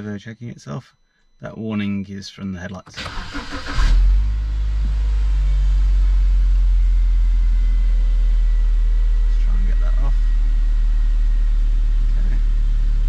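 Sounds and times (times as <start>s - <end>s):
car engine starting and idling: 2.9s - 13.0s.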